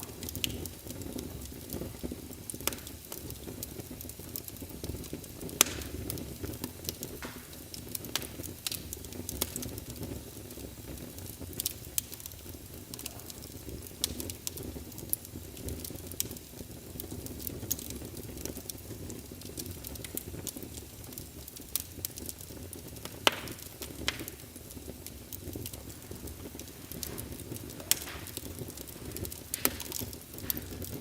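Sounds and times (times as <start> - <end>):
logs burning in fireplace: 0.0 - 31.0.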